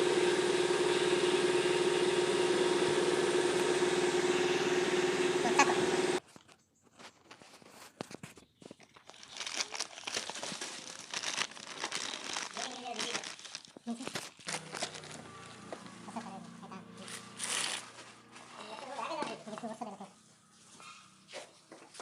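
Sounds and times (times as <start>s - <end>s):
clicks and crinkling: 6.2s - 15.9s
steady mechanical hum: 14.5s - 18.7s.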